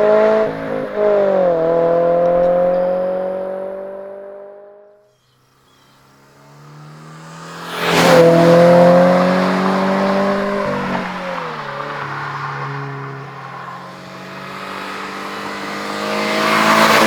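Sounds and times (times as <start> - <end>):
car exhaust passing by: 0.0 - 17.0.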